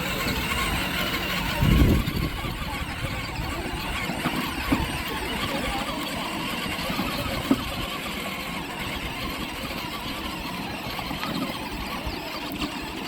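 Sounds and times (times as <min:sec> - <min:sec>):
toy truck electric motor running: 0:00.0 - 0:13.0.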